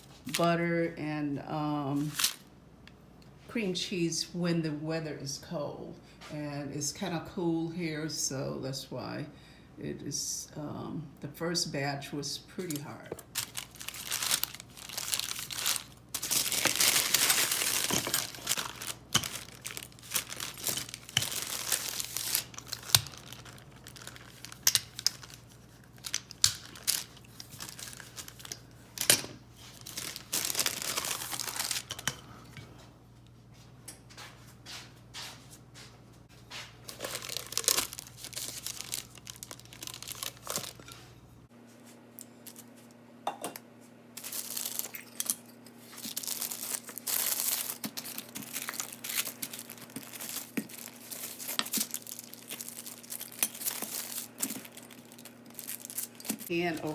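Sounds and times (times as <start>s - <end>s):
parchment paper crinkling: 2.0s - 2.4s, 12.6s - 29.0s, 29.6s - 32.0s, 36.8s - 41.0s, 44.2s - 56.9s.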